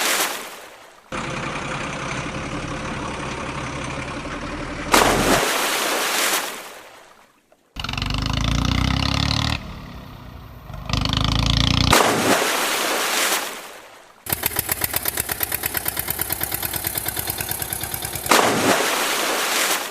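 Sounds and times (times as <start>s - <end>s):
tractor engine running: 1.1s - 5.6s, 7.8s - 12.2s, 14.3s - 19.6s.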